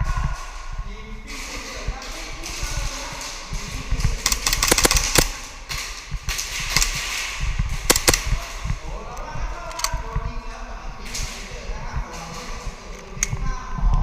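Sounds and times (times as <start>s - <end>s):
gas pistol shots: 4.2s - 8.8s.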